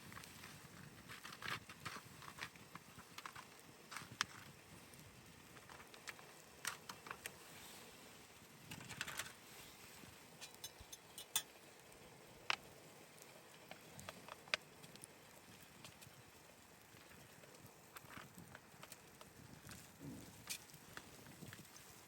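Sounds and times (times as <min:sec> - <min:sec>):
faint steady hiss: 0:00.0 - 0:22.0
light clicks and taps: 0:12.5 - 0:16.2.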